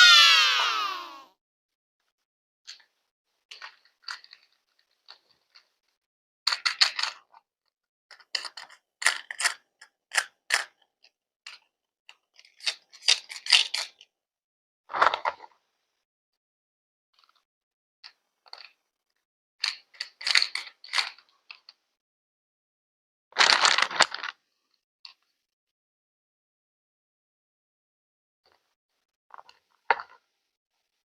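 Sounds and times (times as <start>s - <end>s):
rustling of small objects: 2.7s - 7.5s, 23.4s - 24.5s.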